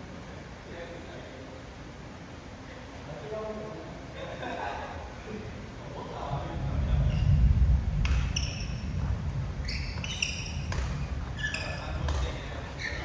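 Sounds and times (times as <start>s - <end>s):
shoes squeaking on court floor: 8.0s - 13.0s
racket hitting shuttlecock: 10.0s - 12.8s.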